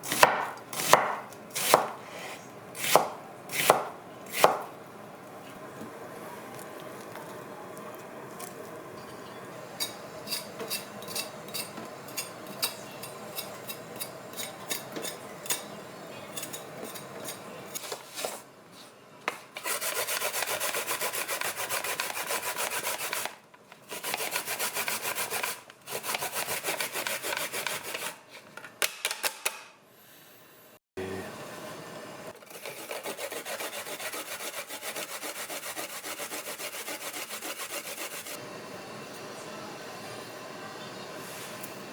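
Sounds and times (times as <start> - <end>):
rasping on a kitchen grater: 19.6 - 28.2, 32.4 - 38.4.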